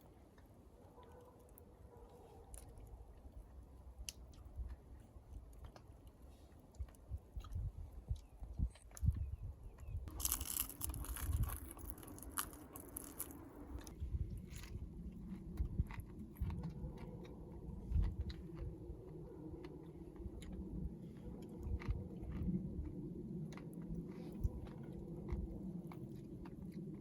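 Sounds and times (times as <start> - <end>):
person chewing food: 10.0 - 27.0.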